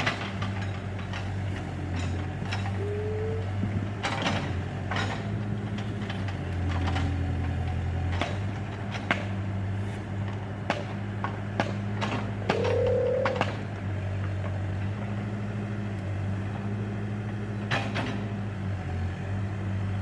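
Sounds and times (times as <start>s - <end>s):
backhoe engine running: 0.0s - 20.0s
brief rising whines: 12.4s - 13.6s.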